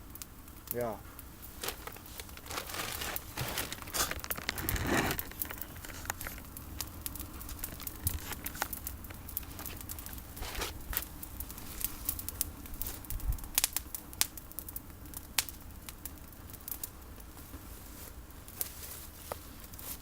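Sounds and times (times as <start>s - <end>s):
campfire crackling: 0.0s - 20.0s
sharp fire pops: 0.1s - 17.7s.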